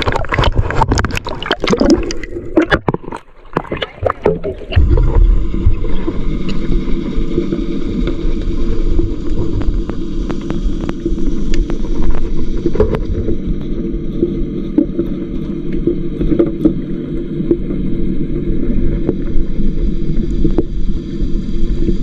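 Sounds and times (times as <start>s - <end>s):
boat engine hum underwater: 0.0s - 22.0s.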